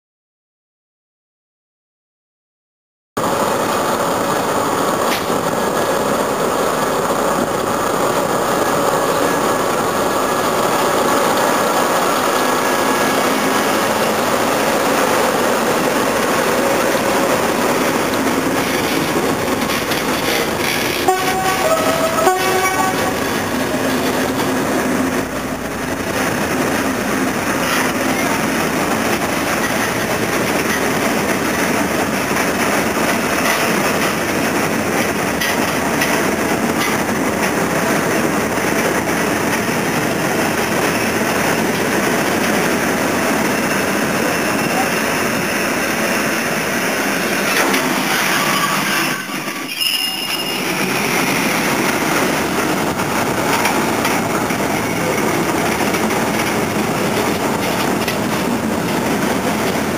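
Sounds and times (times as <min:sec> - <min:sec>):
diesel locomotive engines: 0:03.2 - 0:59.9
train wheels clattering on rails: 0:03.2 - 0:59.9
high pitch-changing tones: 0:21.1 - 0:23.9.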